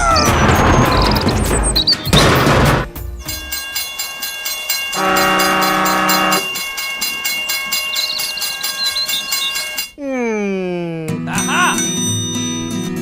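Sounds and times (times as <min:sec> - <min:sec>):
train horn blast: 0:05.0 - 0:06.5.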